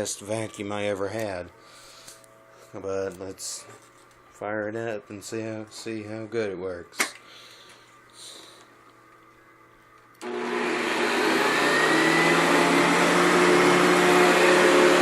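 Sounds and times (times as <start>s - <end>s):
vacuum cleaner motor whine: 10.2s - 15.0s.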